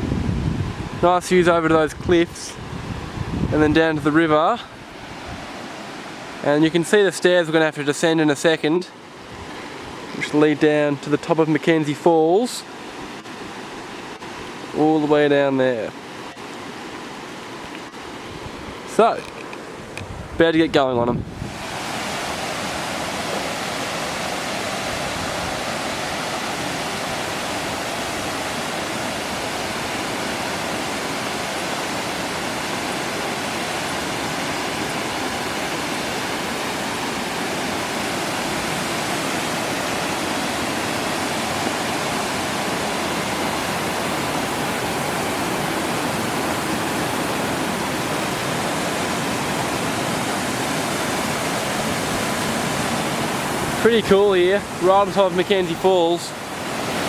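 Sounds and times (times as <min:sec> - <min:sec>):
waterfall roaring: 0:12.6 - 0:57.0.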